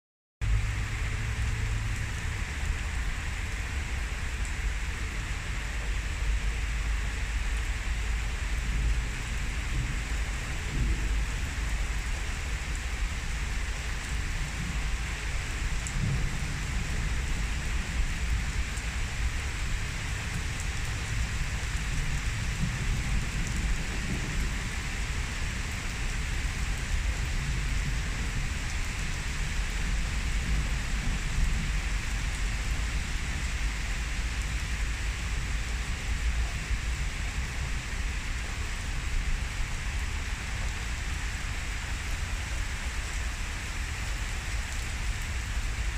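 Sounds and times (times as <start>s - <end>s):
heavy rain pouring: 0.4s - 45.9s
low thunder rumbling: 8.5s - 33.9s.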